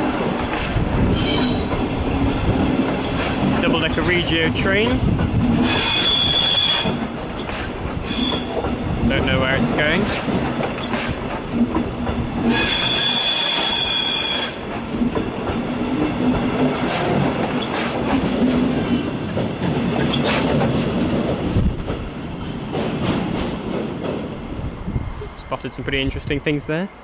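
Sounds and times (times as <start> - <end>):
train wheels rumbling and clacking: 0.0 - 26.9
high wheel squeal: 1.1 - 1.7, 5.6 - 7.0, 8.1 - 8.6, 12.5 - 14.7.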